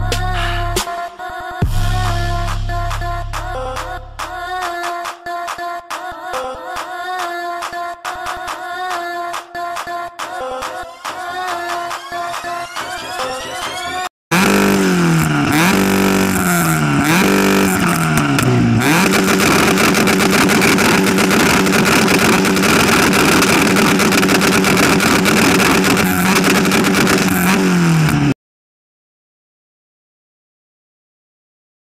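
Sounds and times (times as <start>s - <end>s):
car engine revving hard: 14.3s - 28.4s.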